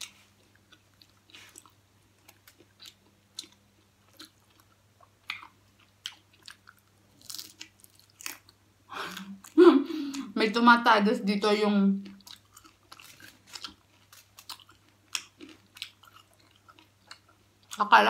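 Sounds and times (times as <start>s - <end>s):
crunchy chewing: 0.0s - 8.6s, 12.0s - 17.8s.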